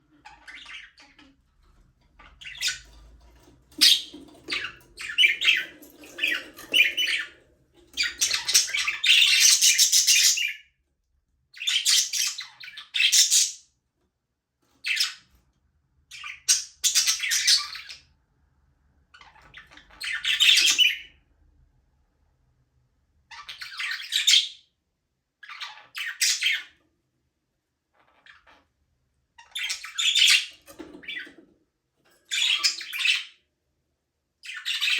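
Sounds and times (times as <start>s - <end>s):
budgerigars chirping and chattering: 0.1s - 10.6s, 11.6s - 13.6s, 14.9s - 15.3s, 16.1s - 18.0s, 19.2s - 21.1s, 23.3s - 24.6s, 25.4s - 26.8s, 29.4s - 31.4s, 32.3s - 33.4s, 34.4s - 34.9s.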